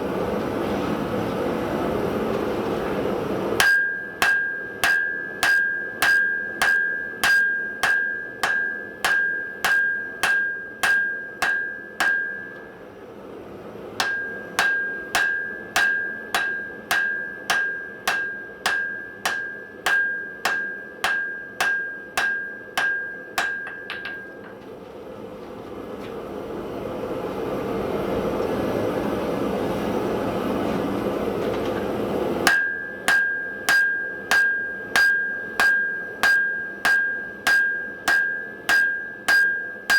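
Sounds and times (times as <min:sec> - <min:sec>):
hammer striking steel on anvil: 0:03.6 - 0:12.8, 0:14.0 - 0:24.6, 0:32.4 - 0:39.9.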